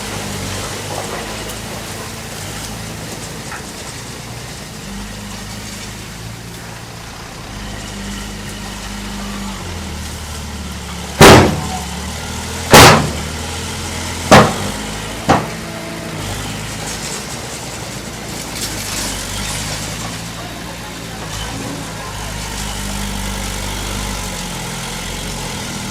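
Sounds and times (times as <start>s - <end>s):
heavy machine engine running: 0.0s - 25.9s
loud bangs: 11.2s - 12.0s, 12.7s - 13.6s, 14.2s - 15.7s.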